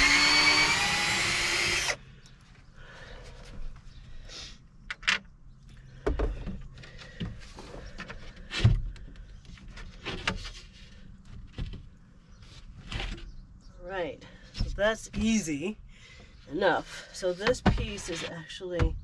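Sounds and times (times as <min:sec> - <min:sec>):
wooden panels knocking and scraping: 0:06.0 - 0:13.4, 0:17.4 - 0:19.0.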